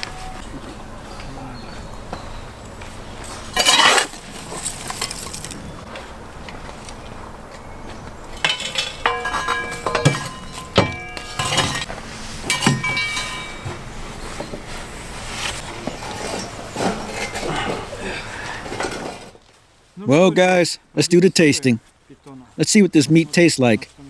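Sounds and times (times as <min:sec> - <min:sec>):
loud scraping: 0:03.2 - 0:05.8, 0:08.4 - 0:19.4
cookware and utensils clattering: 0:03.3 - 0:05.6, 0:08.4 - 0:19.4
ringing clinks: 0:08.4 - 0:11.9, 0:12.5 - 0:14.0.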